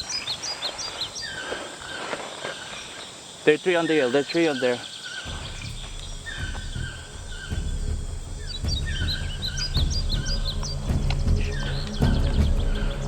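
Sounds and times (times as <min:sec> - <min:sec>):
songbirds chirping: 0:00.0 - 0:13.0
low rumble: 0:05.3 - 0:13.0.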